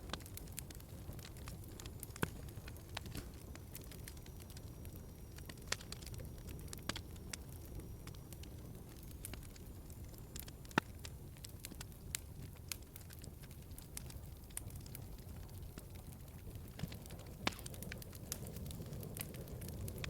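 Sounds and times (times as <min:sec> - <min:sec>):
wood fire crackling in fireplace: 0:00.0 - 0:20.0.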